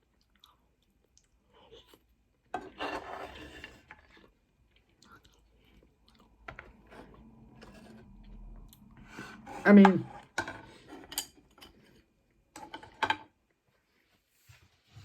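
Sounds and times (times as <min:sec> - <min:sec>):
person chewing noodles: 0:00.0 - 0:02.8, 0:03.7 - 0:09.1.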